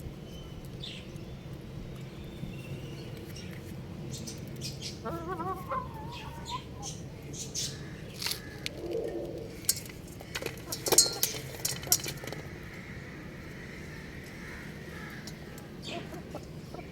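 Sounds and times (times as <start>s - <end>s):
rooster wavering call: 5.0s - 7.0s.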